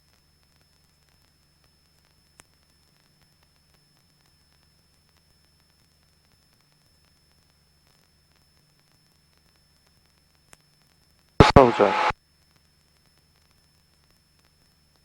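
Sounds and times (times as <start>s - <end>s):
faint hiss and hum: 11.4s - 12.1s
sharp click: 11.4s - 12.1s.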